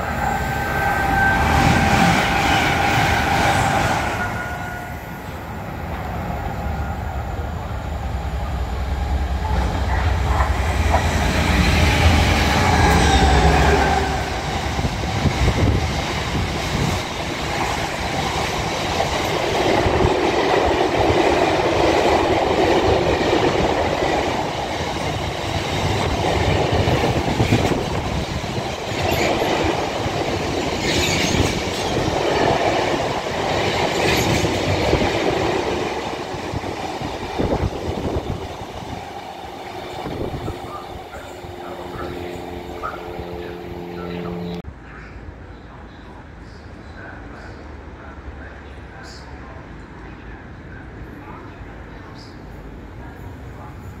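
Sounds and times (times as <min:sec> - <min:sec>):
diesel engine drone: 0:40.7 - 0:44.7.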